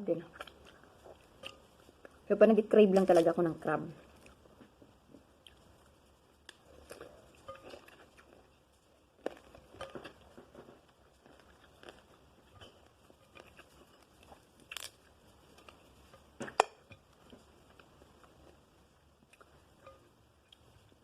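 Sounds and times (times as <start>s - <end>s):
chewing noises: 0.2s - 2.3s, 4.0s - 21.0s
crab shell cracking: 9.3s - 15.8s.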